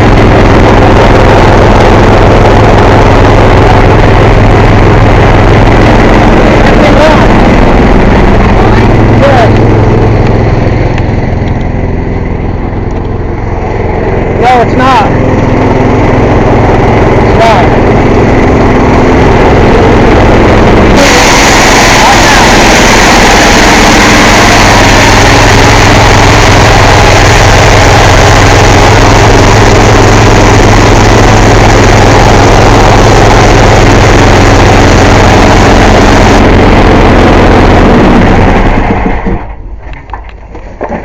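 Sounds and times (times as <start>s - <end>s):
air compressor running: 0.0s - 39.8s
air hissing: 20.9s - 36.4s.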